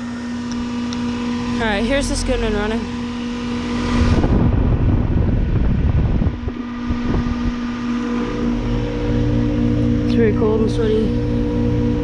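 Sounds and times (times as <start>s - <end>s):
air buffeting microphone: 0.0s - 12.0s
fan noise: 0.0s - 12.0s
heat pump electrical hum: 0.0s - 12.0s.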